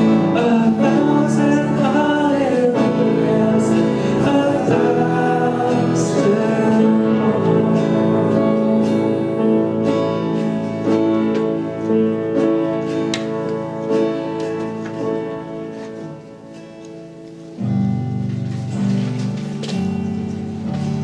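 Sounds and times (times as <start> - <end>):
person singing: 0.0 - 12.0
strummed acoustic guitar: 0.0 - 21.0.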